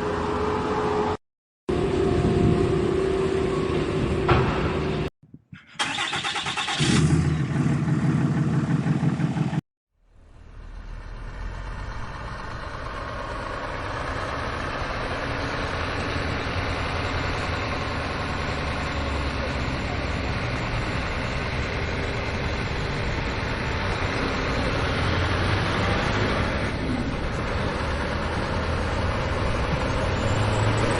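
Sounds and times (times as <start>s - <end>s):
heavy machinery diesel engine running: 5.8s - 9.6s, 10.5s - 30.9s.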